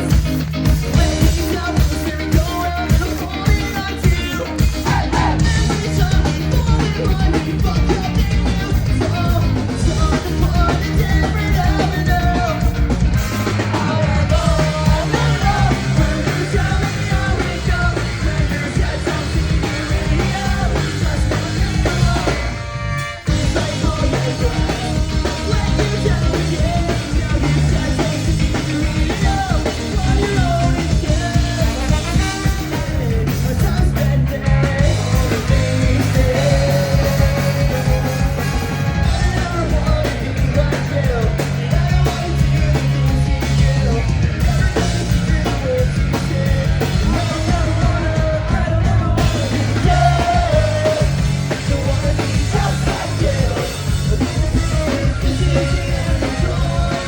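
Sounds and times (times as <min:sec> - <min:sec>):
ska-punk band playing live: 0:00.0 - 0:57.0
person singing and shouting: 0:00.8 - 0:57.0.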